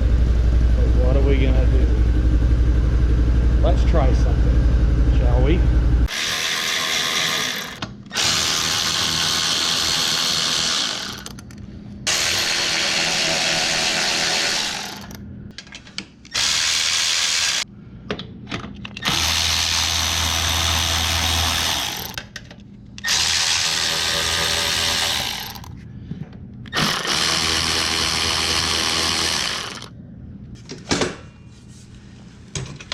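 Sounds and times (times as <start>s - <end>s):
power drill running: 6.1s - 11.4s, 12.1s - 15.2s, 16.3s - 17.7s, 19.0s - 22.2s, 23.0s - 25.7s, 26.7s - 29.9s.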